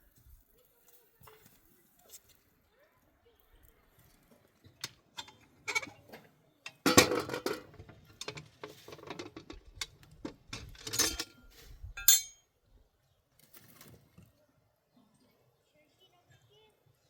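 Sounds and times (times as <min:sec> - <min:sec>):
hard objects clinking and knocking: 0:09.0 - 0:11.4, 0:12.0 - 0:12.4.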